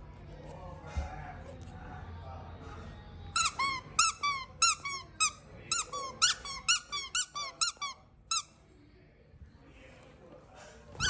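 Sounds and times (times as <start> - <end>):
squeaky toy squeaking: 3.4 - 8.5.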